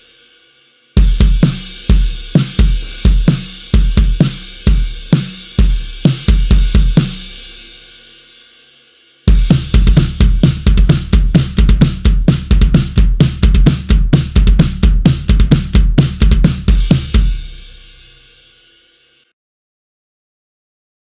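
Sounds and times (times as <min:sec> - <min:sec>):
rock drum kit groove: 0:01.0 - 0:08.3, 0:09.3 - 0:18.8.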